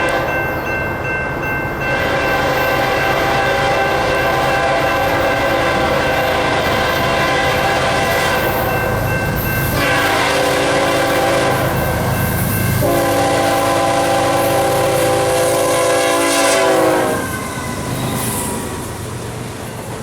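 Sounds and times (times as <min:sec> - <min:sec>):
locomotive air horn blasts: 0:00.0 - 0:00.4, 0:01.9 - 0:08.7, 0:09.7 - 0:12.1, 0:12.8 - 0:17.4
train rolling by: 0:00.0 - 0:20.0.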